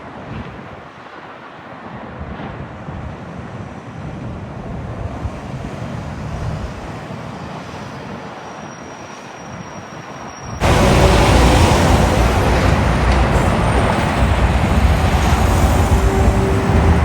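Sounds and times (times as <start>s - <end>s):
heavy vehicle passing: 10.6s - 17.0s
wind on microphone: 10.6s - 17.0s.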